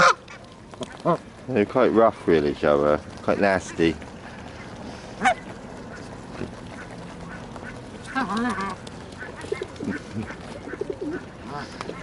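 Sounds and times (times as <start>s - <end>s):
geese honking: 0.0s - 1.2s, 3.4s - 12.0s
background hum of birds: 0.0s - 12.0s
water: 0.0s - 12.0s.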